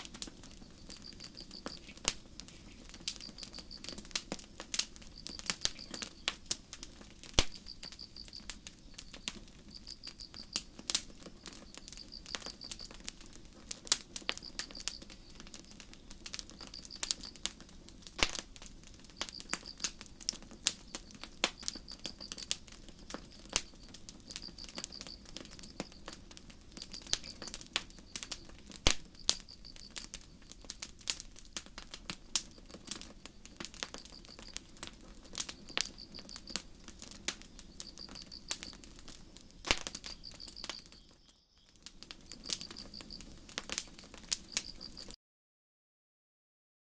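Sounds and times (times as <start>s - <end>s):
crickets chirping: 0.0s - 31.0s, 31.8s - 45.2s
campfire crackling and popping: 0.0s - 45.2s.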